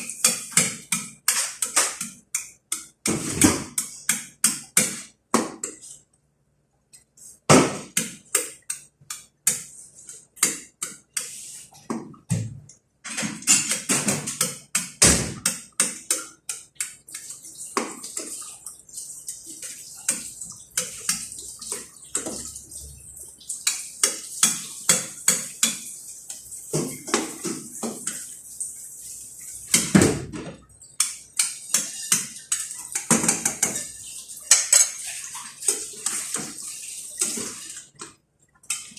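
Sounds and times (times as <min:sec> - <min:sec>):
dishes and utensils clattering: 0:13.1 - 0:16.7, 0:29.6 - 0:38.9
running water: 0:13.2 - 0:38.9.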